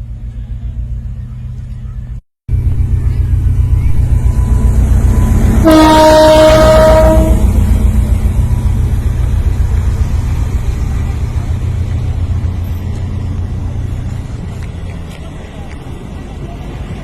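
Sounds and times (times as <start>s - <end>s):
train rumbling: 0.0s - 17.0s
train horn: 4.2s - 7.7s.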